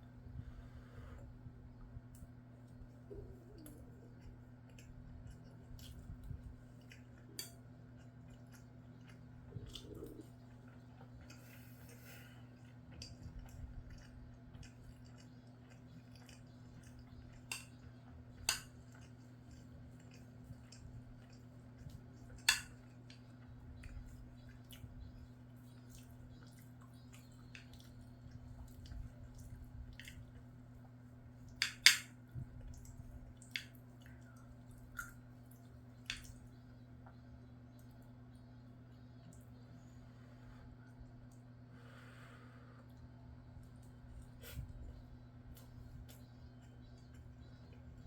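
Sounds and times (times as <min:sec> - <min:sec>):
soft chewing: 0:00.0 - 0:48.0
steady low hum: 0:00.0 - 0:48.0.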